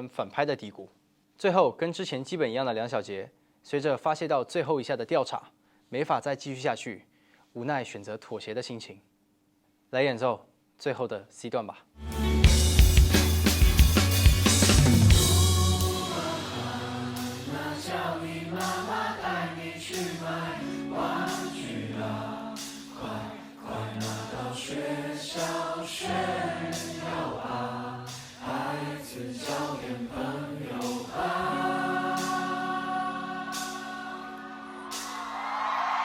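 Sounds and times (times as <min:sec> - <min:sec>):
guitar chords: 0:12.0 - 0:35.4
light cymbal strokes: 0:12.1 - 0:24.5, 0:25.2 - 0:28.5, 0:30.7 - 0:35.3
person singing: 0:14.6 - 0:35.4.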